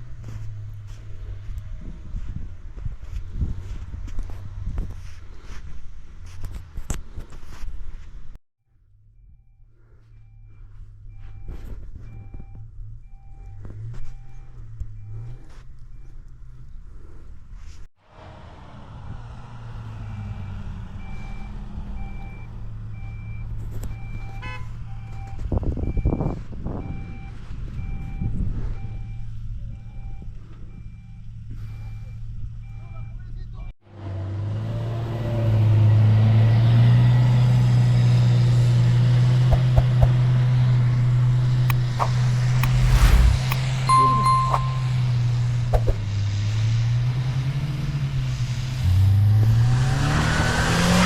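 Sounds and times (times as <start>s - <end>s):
reversing alarm beeping: 9.1s - 16.2s, 20.1s - 33.7s, 42.7s - 45.0s
vehicle engine running: 39.5s - 46.8s.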